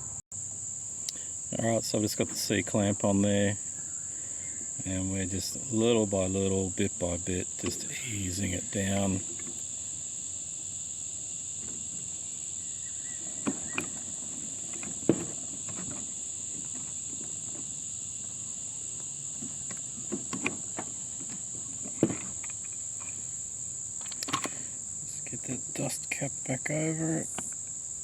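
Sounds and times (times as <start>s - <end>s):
steady high-pitched whine: 0.0s - 28.0s
metal clicks and knocks: 19.4s - 23.2s.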